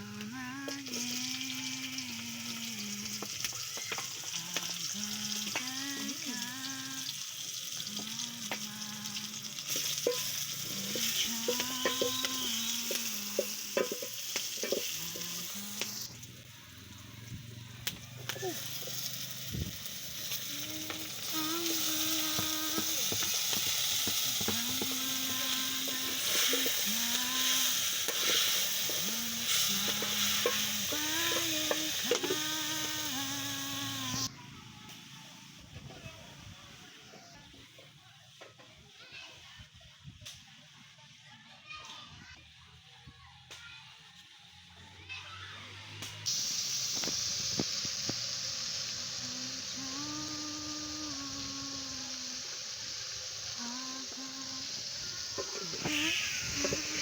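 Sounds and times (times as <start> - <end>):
food sizzling in a pan: 0.0 - 57.0
utensil stirring in a pan: 9.5 - 16.3, 20.0 - 33.3, 46.3 - 57.0.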